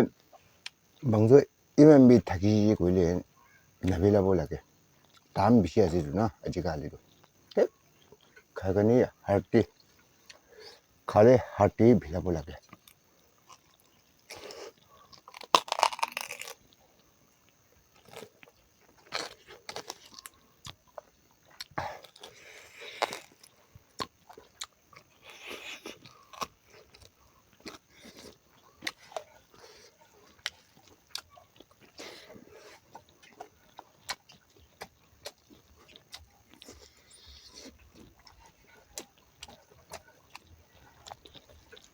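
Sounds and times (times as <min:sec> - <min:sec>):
person chewing and crunching: 0:05.0 - 0:06.2, 0:12.6 - 0:41.9.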